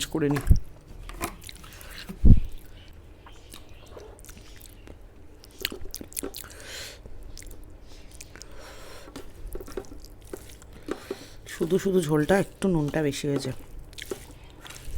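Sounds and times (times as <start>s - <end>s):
chewing and biting food: 2.6s - 14.9s.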